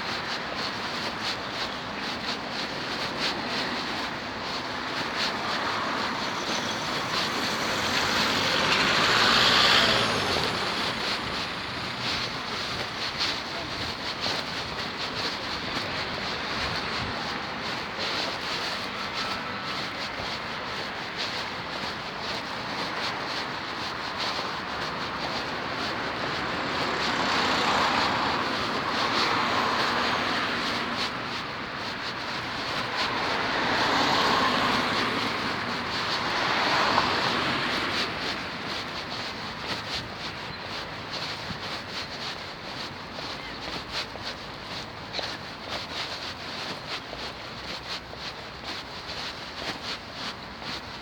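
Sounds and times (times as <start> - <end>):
road traffic: 0.0 - 51.0
vehicle passing close: 3.6 - 19.9, 21.7 - 41.8.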